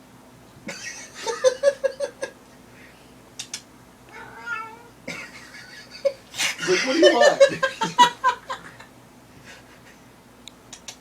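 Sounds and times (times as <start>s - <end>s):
sharp clicks: 3.4s - 3.7s, 10.4s - 11.0s
person giggling: 5.1s - 10.0s.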